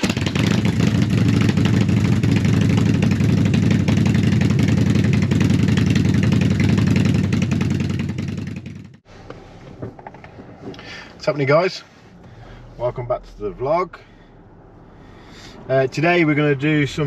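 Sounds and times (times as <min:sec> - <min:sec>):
motorcycle engine idling: 0:00.0 - 0:09.0.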